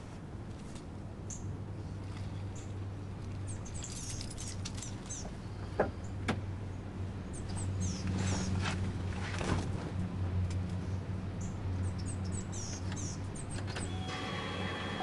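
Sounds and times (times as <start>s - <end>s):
birds chirping: 3.4s - 8.6s, 11.4s - 15.0s.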